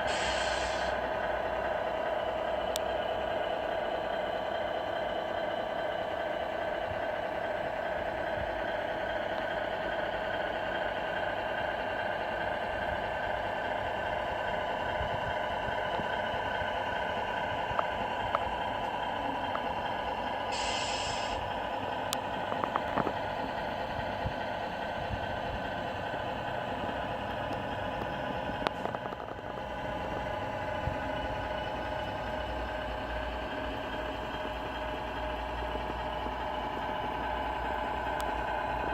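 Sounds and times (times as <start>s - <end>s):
short hiss: 0.0s - 1.0s, 20.5s - 21.4s
model truck engine hum: 0.0s - 38.9s.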